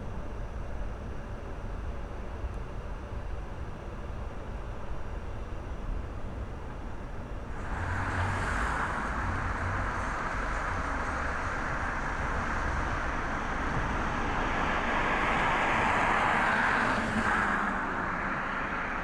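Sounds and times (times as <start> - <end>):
aircraft engine rushing rumble: 7.0 - 19.0.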